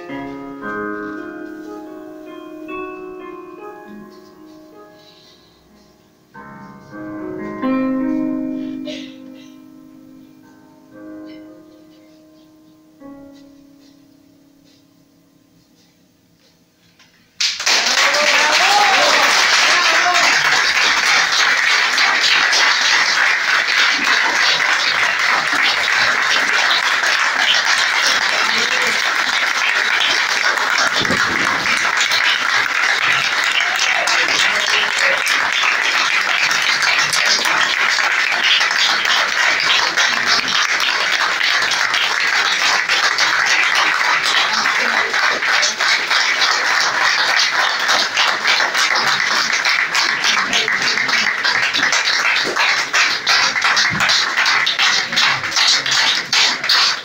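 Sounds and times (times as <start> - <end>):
audience clapping: 17.4 - 57.0.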